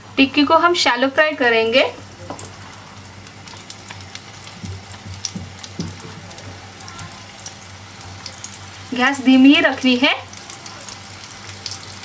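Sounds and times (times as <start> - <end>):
patties frying in hot oil: 0.2 - 12.0.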